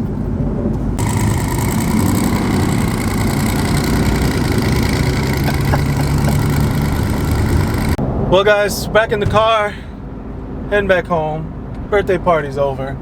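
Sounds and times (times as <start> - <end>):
car exhaust rumbling: 0.8 - 8.0.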